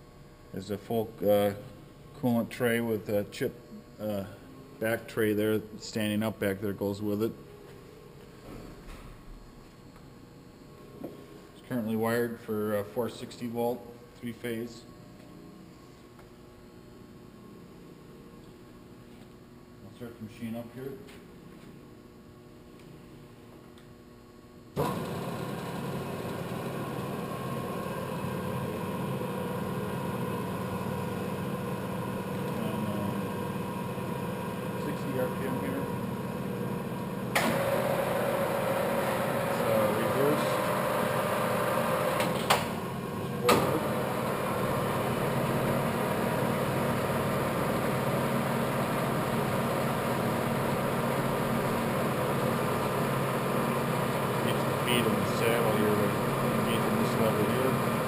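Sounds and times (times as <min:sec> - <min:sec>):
lathe motor hum and whine: 0:24.8 - 0:58.0.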